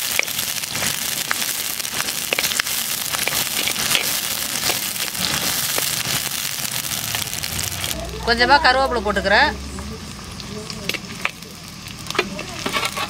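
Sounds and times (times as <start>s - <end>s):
food sizzling in hot oil: 0.0s - 13.0s
oil popping: 0.0s - 13.0s
metal ladle scraping a pot: 12.2s - 13.0s.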